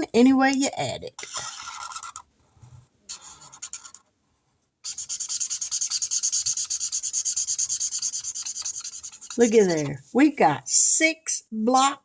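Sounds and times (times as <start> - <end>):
pen scribbling on paper: 1.2 - 2.2, 3.1 - 4.1, 4.8 - 10.0.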